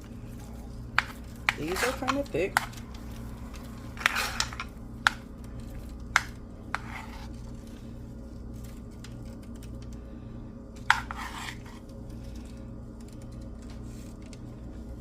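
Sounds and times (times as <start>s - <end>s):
steady low hum: 0.0s - 15.0s
spoon scraping mashed potatoes: 0.2s - 7.6s, 10.8s - 11.9s.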